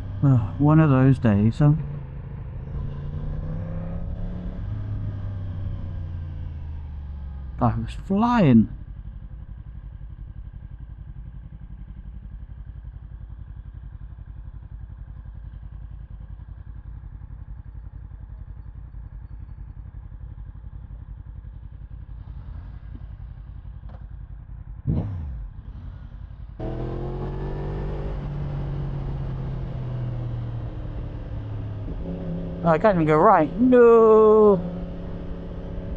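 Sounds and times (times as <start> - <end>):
motorcycle engine revving: 0.0 - 7.6, 20.0 - 35.9
motorcycle engine idling: 0.0 - 35.9.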